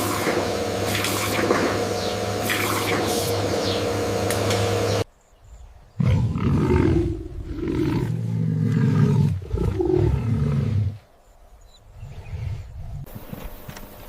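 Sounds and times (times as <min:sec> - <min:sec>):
big cat roaring and growling: 0:06.0 - 0:11.0.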